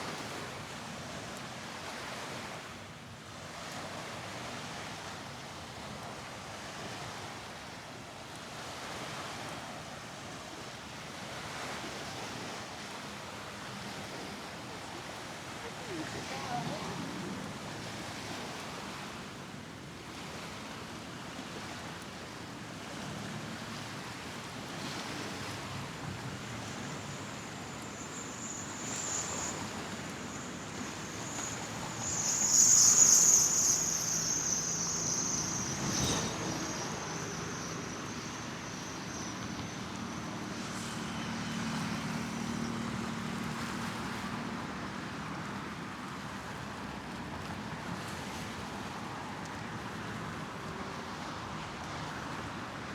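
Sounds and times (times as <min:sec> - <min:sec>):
traffic noise: 0:22.8 - 0:52.9
thin high whine: 0:23.6 - 0:44.3.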